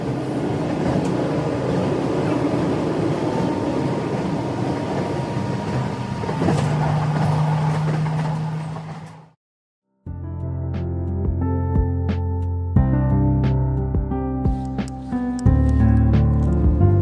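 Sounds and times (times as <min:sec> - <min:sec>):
train running: 0:00.0 - 0:09.4.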